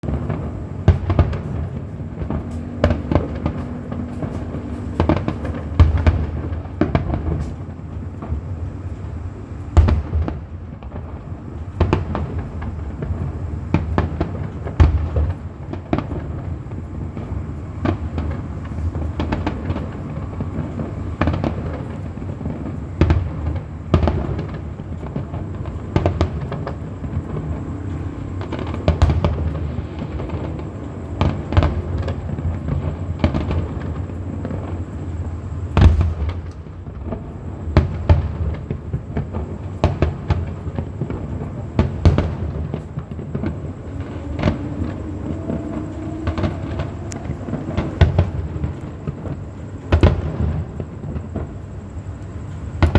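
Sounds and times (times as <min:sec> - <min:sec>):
fireworks bursting: 0:00.0 - 0:52.9
low rumble: 0:42.9 - 0:49.1.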